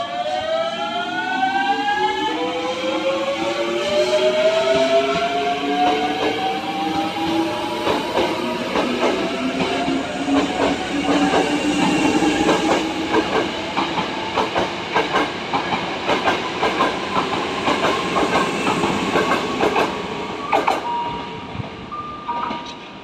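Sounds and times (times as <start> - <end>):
electric train whine: 0.0 - 23.0
wheels clacking over rail joints: 7.8 - 18.4.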